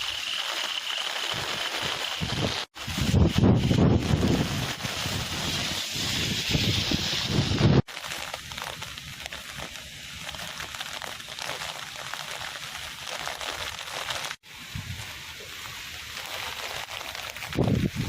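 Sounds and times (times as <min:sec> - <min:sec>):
heavy rain: 0:00.0 - 0:18.0
wind gusting on microphone: 0:02.2 - 0:07.8, 0:14.6 - 0:15.2, 0:17.4 - 0:18.0
running water: 0:07.8 - 0:18.0.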